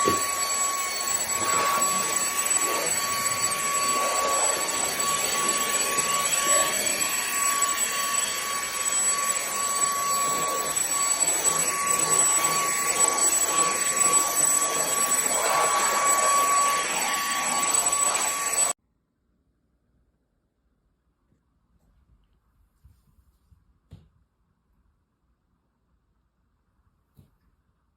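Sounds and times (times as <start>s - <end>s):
vacuum cleaner motor whining: 0.0s - 18.8s.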